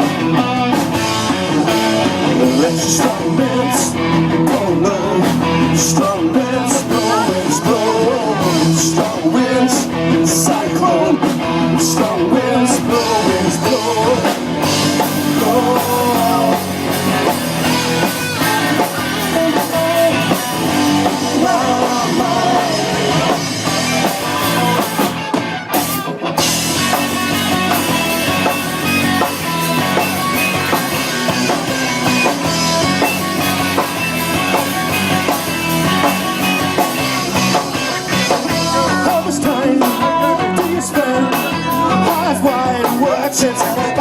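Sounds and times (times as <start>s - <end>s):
live rock band playing: 0.0s - 44.0s.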